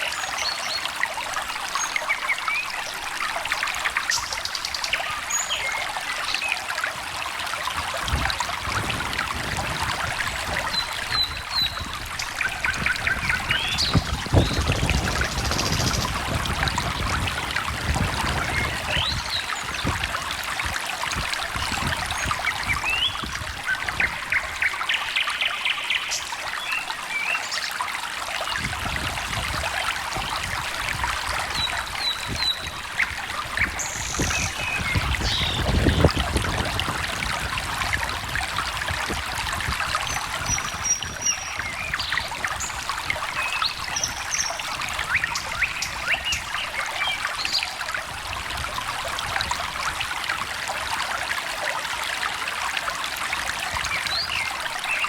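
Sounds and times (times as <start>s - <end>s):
stream trickling: 0.0s - 55.0s
bird chirps and trills: 10.7s - 16.2s, 31.5s - 36.2s, 40.0s - 47.7s.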